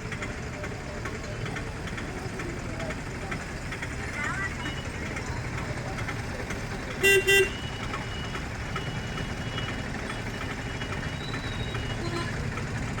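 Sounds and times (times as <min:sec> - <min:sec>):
vehicle engine running: 0:00.0 - 0:13.0
loud horn beep: 0:07.0 - 0:07.9.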